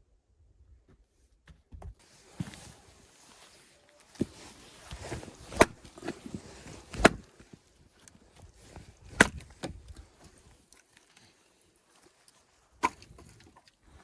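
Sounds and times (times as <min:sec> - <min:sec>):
knocks and shuffling: 0:00.8 - 0:10.5
axe chopping wood: 0:05.4 - 0:06.2, 0:06.9 - 0:07.3, 0:09.1 - 0:09.8, 0:12.8 - 0:13.2.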